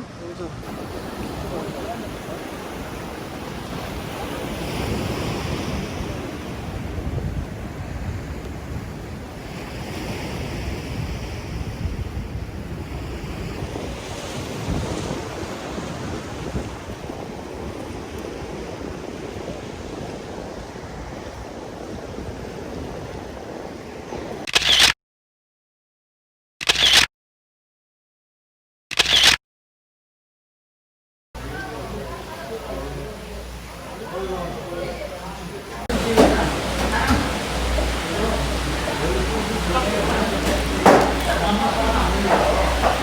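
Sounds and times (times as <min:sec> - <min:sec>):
sea waves washing ashore: 0:00.0 - 0:24.5, 0:31.4 - 0:43.0
wind buffeting microphone: 0:00.2 - 0:24.4, 0:31.4 - 0:43.0
loud burst of noise: 0:31.4 - 0:43.0.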